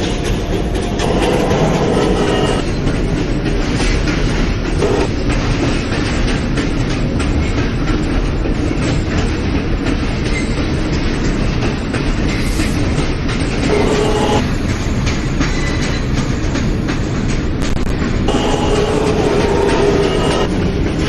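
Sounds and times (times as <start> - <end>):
subway train rumbling: 0.0 - 21.0
wheels clicking over rail joints: 0.0 - 21.0.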